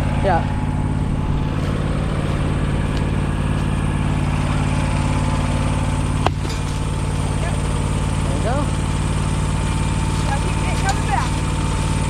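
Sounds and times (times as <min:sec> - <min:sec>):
lawn tractor engine running: 0:00.0 - 0:12.0.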